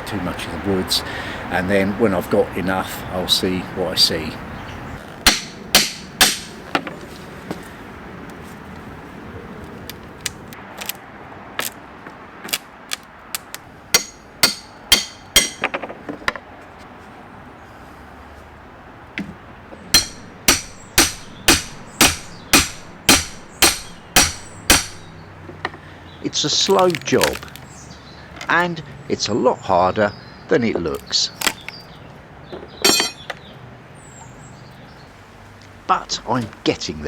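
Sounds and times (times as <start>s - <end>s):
hammer striking wooden pallet: 5.3s - 6.6s, 14.0s - 15.7s, 20.0s - 25.1s.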